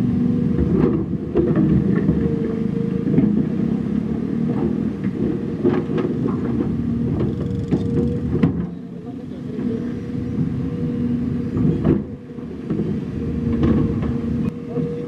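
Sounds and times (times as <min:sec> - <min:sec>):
heavy diesel engine running: 0:02.7 - 0:12.6.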